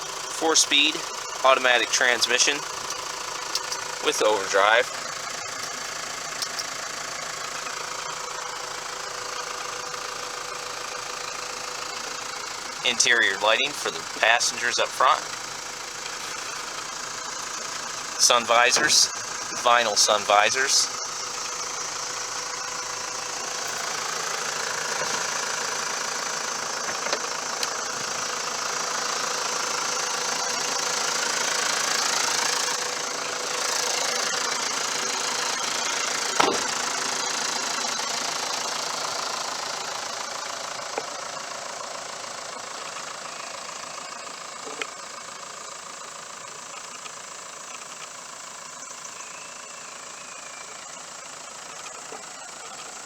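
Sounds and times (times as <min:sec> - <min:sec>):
diesel engine idling: 0:00.0 - 0:53.0
sharp knock: 0:36.4 - 0:36.7.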